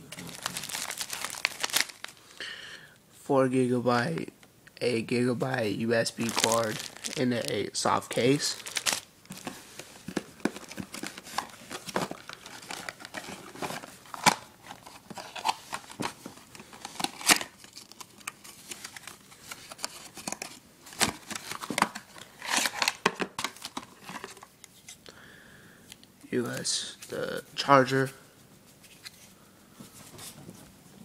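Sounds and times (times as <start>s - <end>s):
packaging rustling and crinkling: 0.1s - 2.3s, 6.0s - 24.5s.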